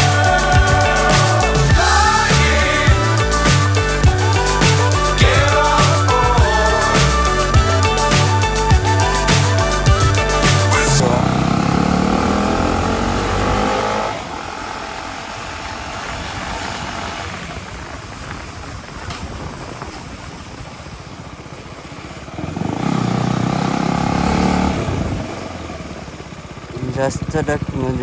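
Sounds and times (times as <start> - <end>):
motorcycle engine: 0.0 - 28.0
wind rush on microphone: 14.2 - 22.4, 24.7 - 25.6.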